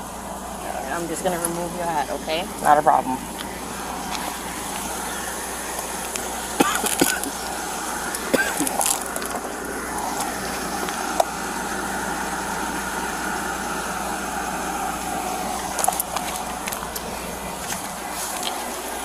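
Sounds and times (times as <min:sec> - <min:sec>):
car engine humming: 0:00.0 - 0:19.0.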